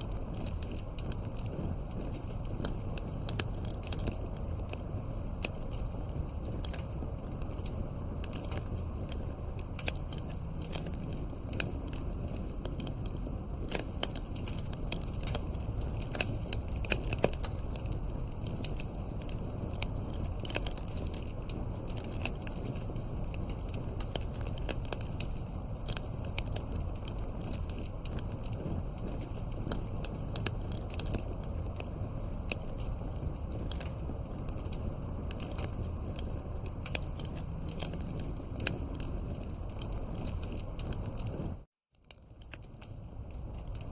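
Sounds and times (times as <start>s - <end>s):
campfire crackling and popping: 0.0s - 43.9s.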